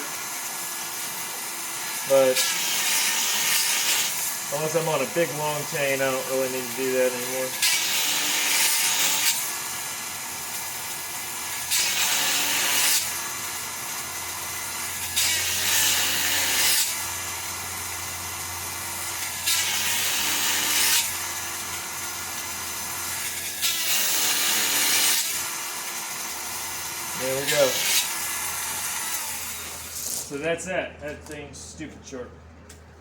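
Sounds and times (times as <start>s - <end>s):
grinding stone rasping on metal: 26.8s - 30.4s.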